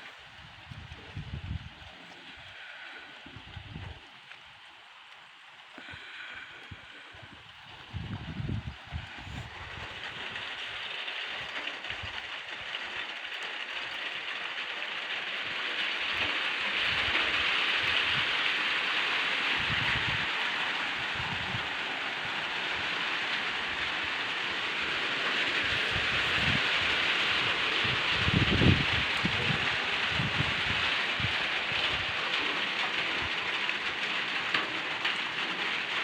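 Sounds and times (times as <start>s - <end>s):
rain falling on a garden: 0.0s - 36.0s.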